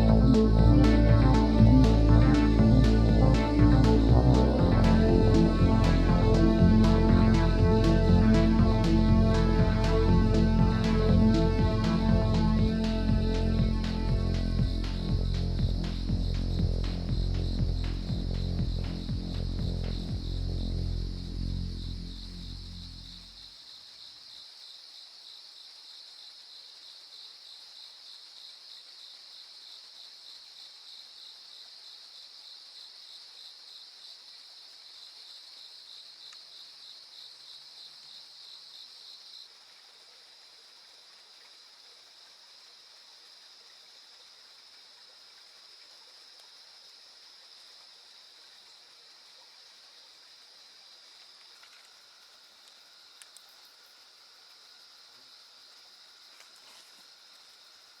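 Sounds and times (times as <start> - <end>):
insects trilling: 12.1 - 58.0.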